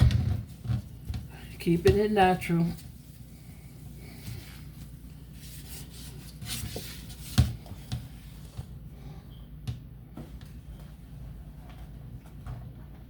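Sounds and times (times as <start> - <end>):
scrubbing a refrigerator surface: 0.4 - 8.6.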